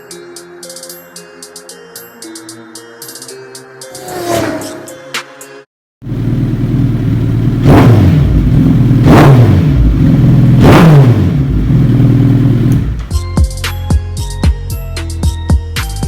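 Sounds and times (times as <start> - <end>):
motorcycle engine revving: 6.0 - 13.1.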